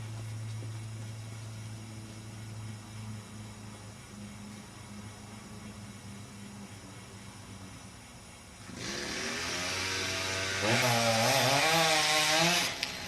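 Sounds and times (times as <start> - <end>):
chainsaw revving: 8.6 - 13.0.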